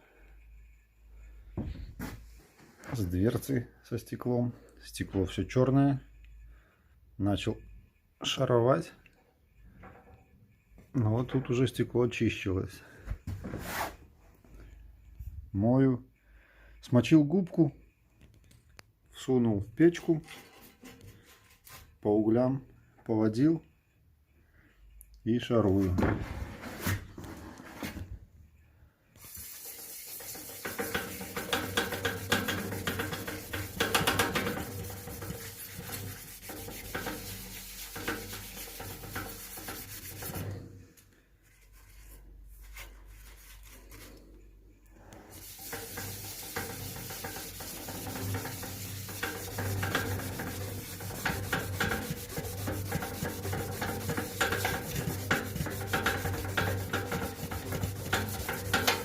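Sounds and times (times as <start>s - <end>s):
sponge scrubbing glass: 29.3s - 40.5s, 45.3s - 59.0s.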